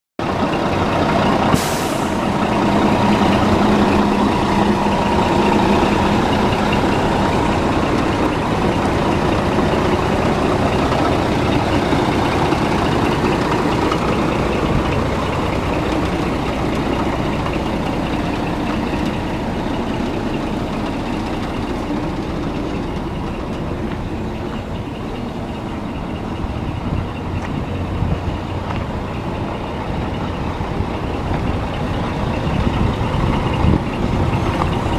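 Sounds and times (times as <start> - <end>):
truck diesel engine idling: 0.2 - 34.9
air hiss: 1.6 - 2.4.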